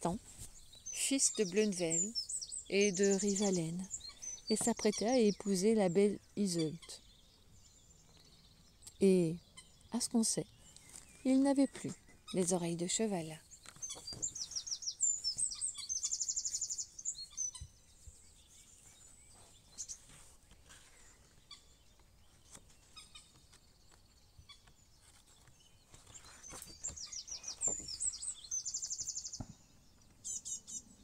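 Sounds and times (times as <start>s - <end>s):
songbird trilling: 0.0s - 20.0s, 26.1s - 29.6s, 30.2s - 31.0s
bird chirps: 0.0s - 31.0s.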